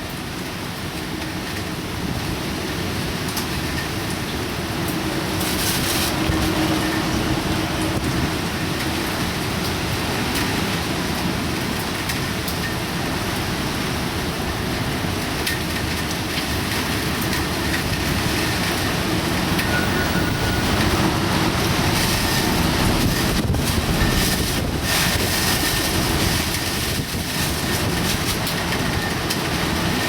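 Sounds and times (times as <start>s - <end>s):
heavy rain: 0.0s - 30.0s
wind noise: 2.1s - 11.6s, 17.2s - 30.0s.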